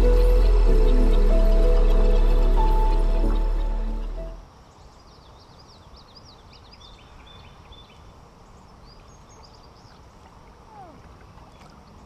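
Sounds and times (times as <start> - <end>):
water rushing: 0.0 - 4.5
small birds chirping: 0.0 - 12.0.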